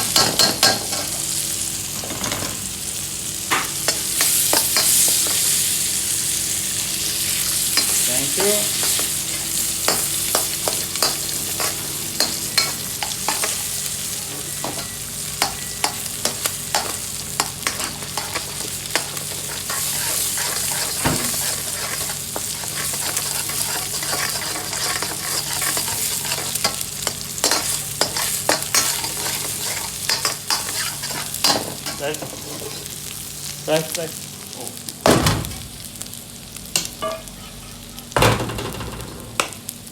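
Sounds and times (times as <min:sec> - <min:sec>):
food sizzling in a pan: 0:00.0 - 0:39.9
metal utensil scraping a pan: 0:14.6 - 0:26.8, 0:27.4 - 0:32.8.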